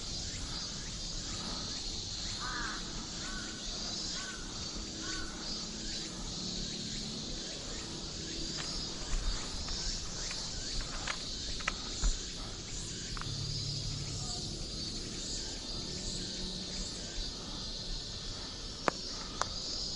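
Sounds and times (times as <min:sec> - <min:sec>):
high-pitched insect drone: 0:00.0 - 0:19.9
crow cawing: 0:02.4 - 0:03.6, 0:05.0 - 0:05.4.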